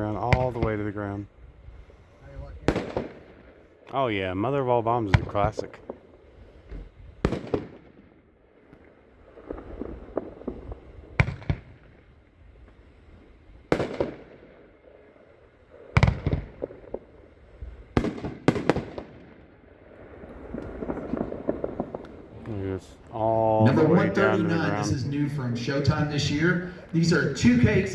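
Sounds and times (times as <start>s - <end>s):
firework booms: 2.4s - 3.7s, 5.0s - 27.9s
firework pops and crackle: 5.1s - 8.0s, 8.7s - 12.8s, 13.7s - 14.5s, 15.9s - 19.6s, 20.3s - 23.2s.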